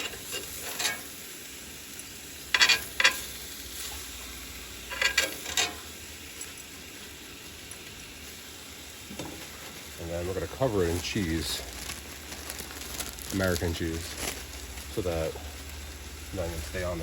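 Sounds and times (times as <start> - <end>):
utensil scraping a pan: 0.0 - 1.2, 2.5 - 4.0, 4.8 - 5.9
meat and onions sizzling: 0.0 - 17.0.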